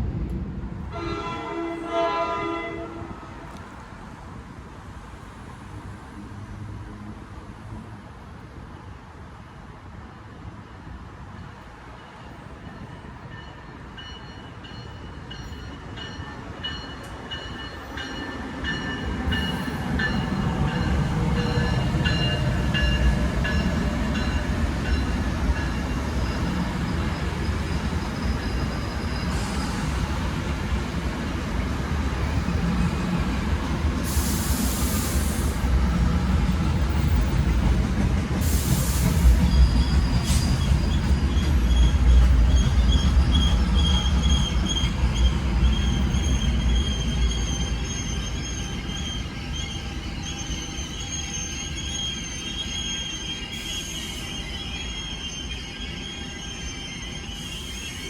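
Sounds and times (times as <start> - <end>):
passenger train rumbling past: 0.0 - 58.0
high ringing from rails: 12.0 - 30.2.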